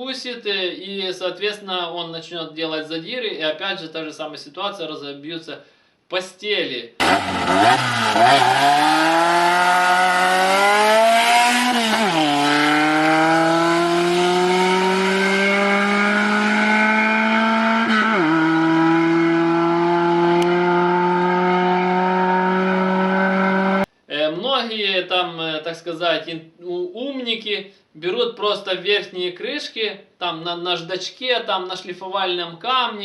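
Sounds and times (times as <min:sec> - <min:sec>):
car engine accelerating: 0:07.0 - 0:23.9.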